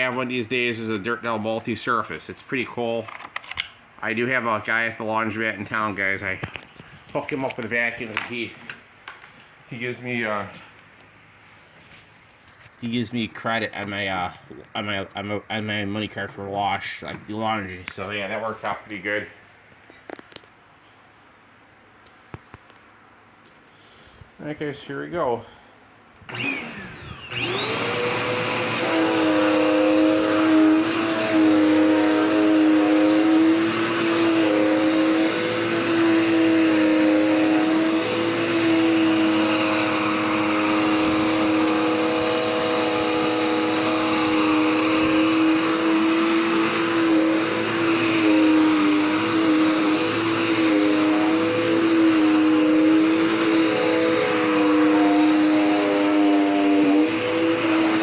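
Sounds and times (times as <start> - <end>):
vacuum cleaner running: 26.3 - 58.0.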